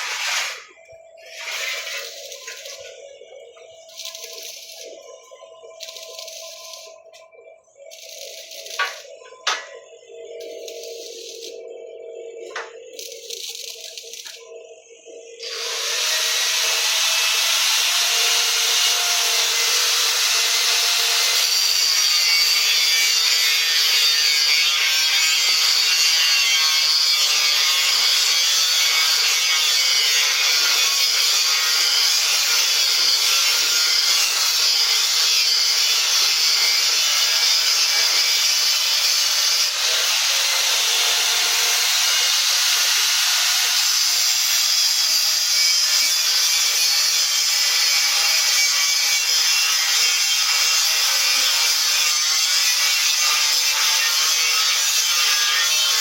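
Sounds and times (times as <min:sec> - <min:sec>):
power tool cutting: 0:00.0 - 0:00.7, 0:01.3 - 0:03.0, 0:07.9 - 0:09.6, 0:15.4 - 0:56.0.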